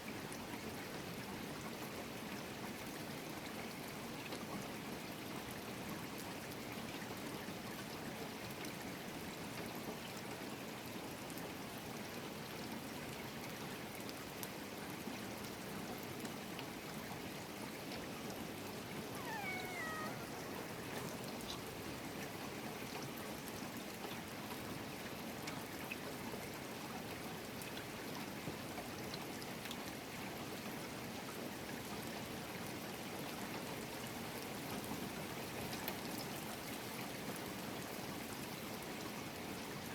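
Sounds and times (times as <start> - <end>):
steady rain falling: 0.0 - 39.9
animal call falling in pitch: 19.1 - 21.2.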